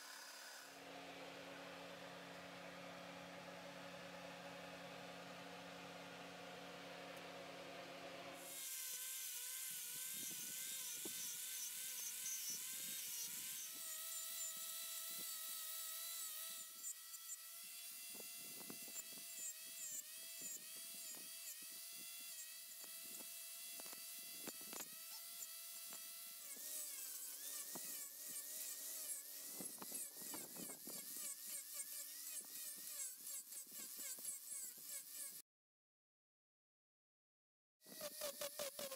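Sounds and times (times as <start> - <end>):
power carving tool whining: 0.0 - 0.8, 8.4 - 35.4
cutter scraping wood: 8.4 - 35.4, 37.9 - 38.9.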